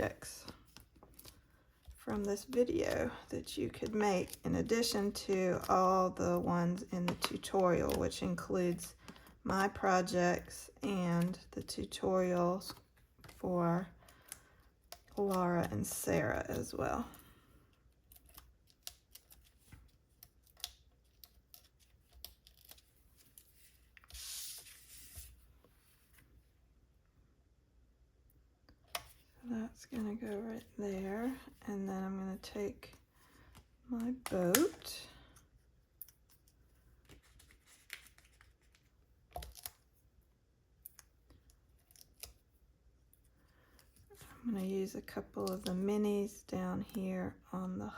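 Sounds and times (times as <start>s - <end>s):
paper and card handling clicks: 0.0s - 9.7s
cardstock rustling: 18.2s - 26.3s.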